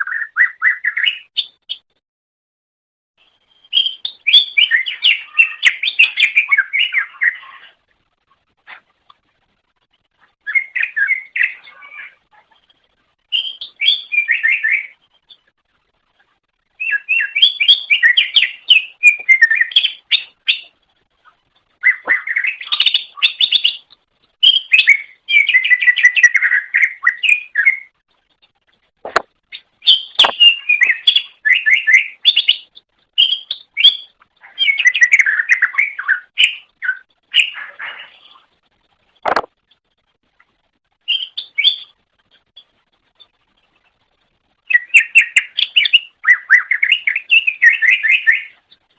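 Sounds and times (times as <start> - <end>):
bird singing twittering chirps: 3.2 - 7.8, 9.9 - 15.5, 16.7 - 28.0, 29.5 - 38.5, 41.0 - 44.0, 44.6 - 48.9
sharp clicks: 30.2 - 30.5, 39.2 - 39.5.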